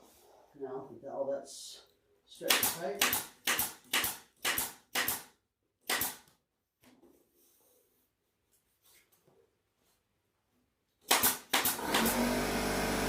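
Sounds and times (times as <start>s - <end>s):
staple gun firing: 2.5s - 5.3s, 5.9s - 6.3s, 11.1s - 12.1s.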